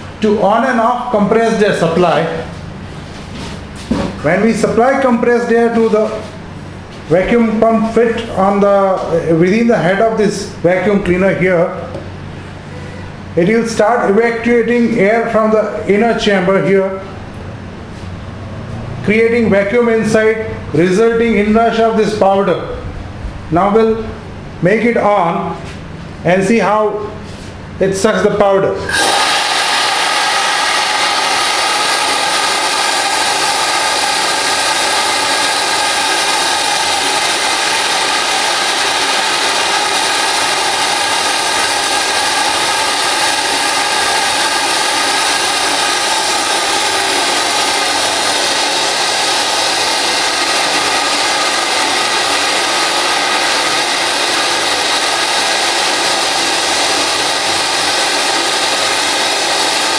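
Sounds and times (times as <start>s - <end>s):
air-driven vacuum cleaner hissing: 28.9s - 59.9s.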